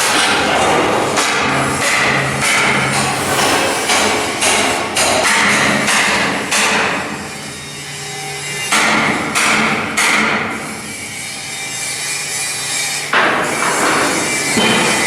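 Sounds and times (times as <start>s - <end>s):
hammer striking steel: 0.0s - 7.0s.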